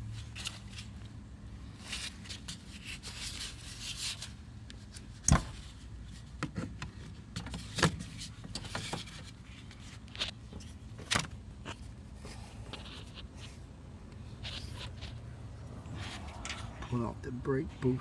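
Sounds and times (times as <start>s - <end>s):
hoses and parts rustling: 0.0s - 17.2s.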